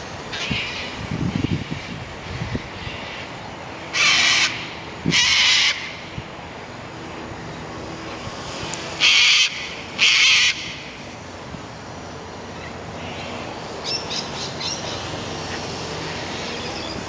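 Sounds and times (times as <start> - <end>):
low wind rumble: 0.0 - 17.0
crow cawing: 9.0 - 10.7.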